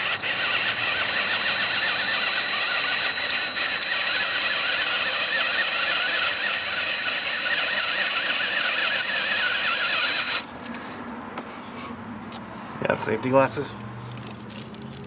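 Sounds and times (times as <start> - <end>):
harsh metal squeal: 0.0 - 10.5
power tool whining: 0.0 - 10.7.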